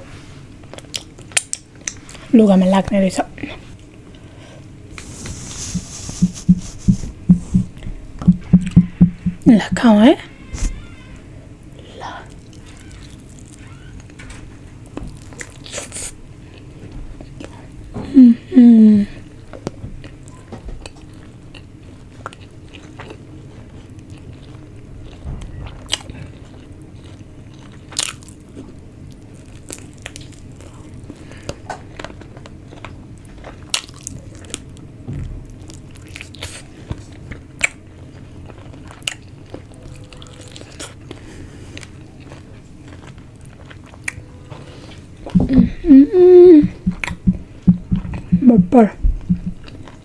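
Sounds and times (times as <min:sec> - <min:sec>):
faint low hum: 0:04.9 - 0:11.1, 0:45.2 - 0:49.7.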